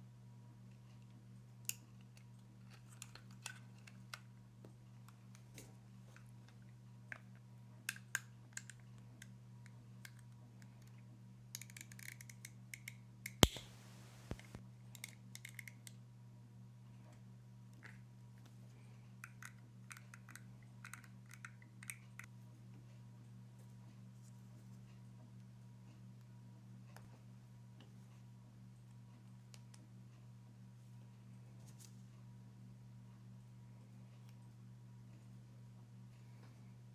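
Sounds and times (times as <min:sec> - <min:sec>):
small parts clicking and tapping: 0:10.0 - 0:16.0, 0:19.2 - 0:22.3
sharp loud click: 0:13.4 - 0:14.6
steady low hum: 0:13.4 - 0:14.6.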